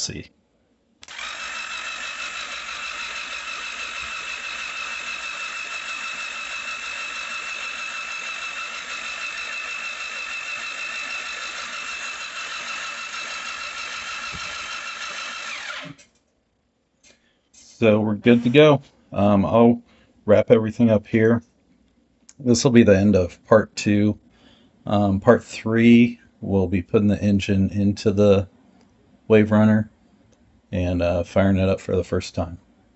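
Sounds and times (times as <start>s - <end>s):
starter motor cranking engine: 1.0s - 16.1s.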